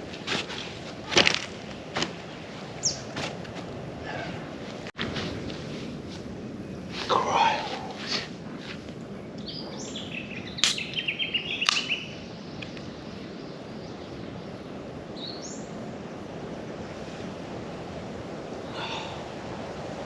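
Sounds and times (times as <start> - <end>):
steady background hiss: 0.0 - 20.0
birds calling: 2.2 - 3.2, 9.1 - 15.8.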